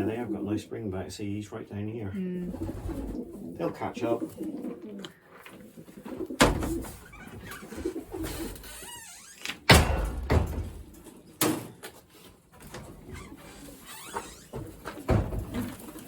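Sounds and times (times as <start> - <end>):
pigeons cooing: 0.0 - 0.7, 2.3 - 8.8
sharp knocks: 9.7 - 11.0.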